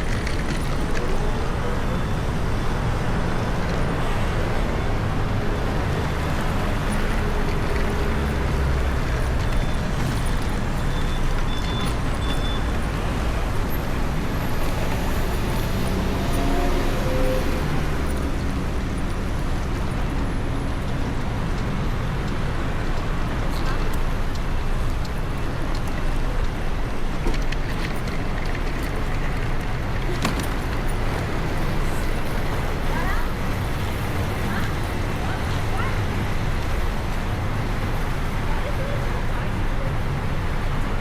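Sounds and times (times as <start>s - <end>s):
road traffic rumble: 0.0s - 41.0s.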